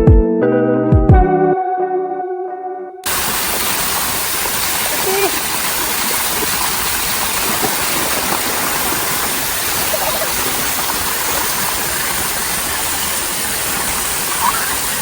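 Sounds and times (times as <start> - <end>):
river water rushing: 3.1 - 15.0.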